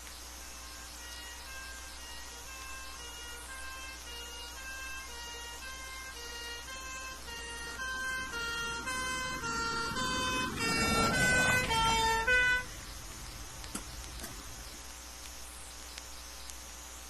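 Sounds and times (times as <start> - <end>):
engine and road noise: 0.0 - 15.3
two-tone emergency horn: 0.4 - 13.6.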